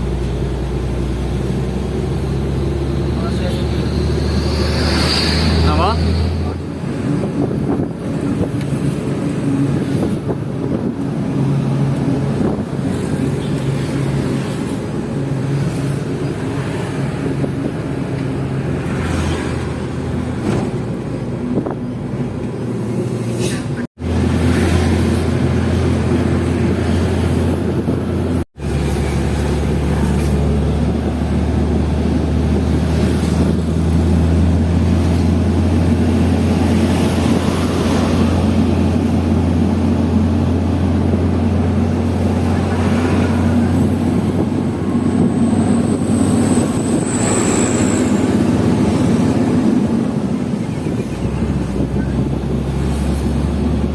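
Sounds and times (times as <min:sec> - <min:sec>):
diesel truck engine droning: 0:00.0 - 0:53.9.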